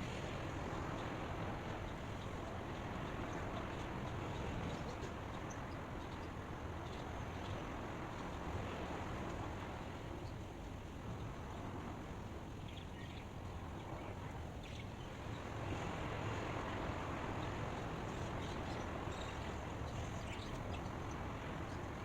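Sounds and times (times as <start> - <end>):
low outdoor ambient noise: 0.0 - 22.0.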